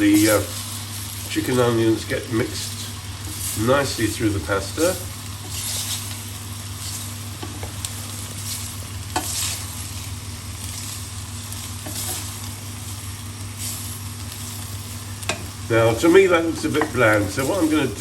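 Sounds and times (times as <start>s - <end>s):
food sizzling in a pan: 0.0s - 18.0s
steady low hum: 0.0s - 18.0s
spoon scraping a pan: 5.4s - 6.1s, 8.5s - 9.7s, 11.8s - 12.4s.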